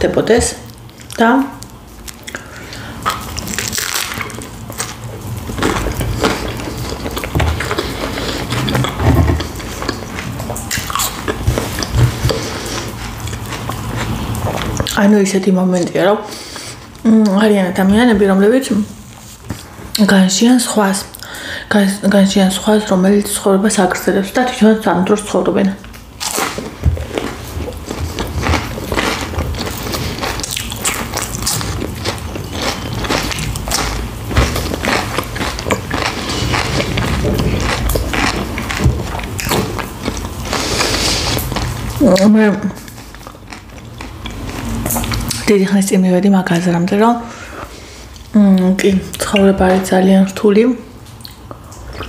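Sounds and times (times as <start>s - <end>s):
chewing and biting sandwich: 0.8s - 14.9s, 26.2s - 42.0s, 42.8s - 45.4s.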